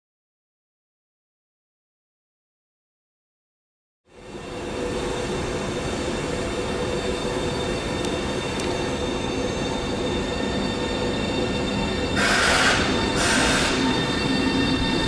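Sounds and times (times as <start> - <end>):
train wheels rumbling on rail: 4.1 - 15.0
whining tones: 4.2 - 15.0.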